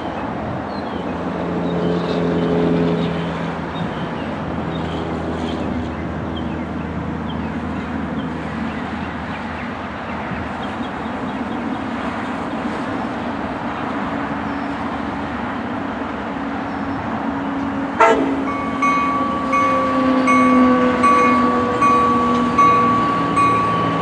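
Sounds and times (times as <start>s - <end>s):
train rumble: 0.0s - 24.0s
warning bell ringing: 18.0s - 24.0s.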